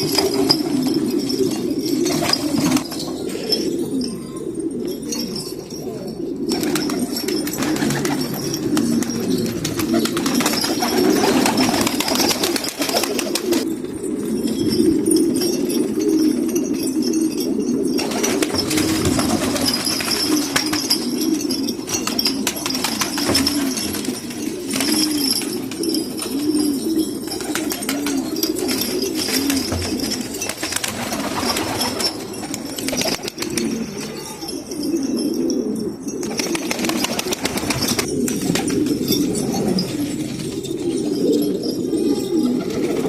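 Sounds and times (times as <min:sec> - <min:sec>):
pigeons cooing: 0:00.0 - 0:43.0
wing flaps: 0:06.5 - 0:13.7, 0:27.3 - 0:34.2.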